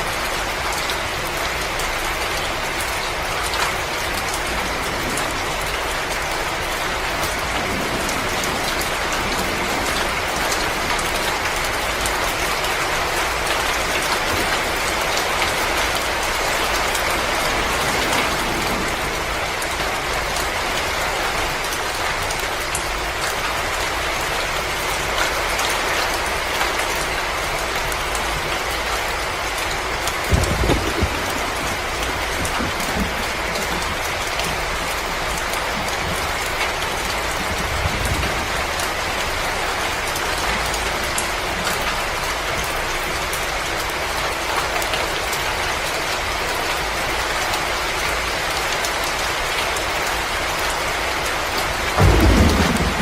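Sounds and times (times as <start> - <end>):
wood fire crackling: 13.4 - 20.6.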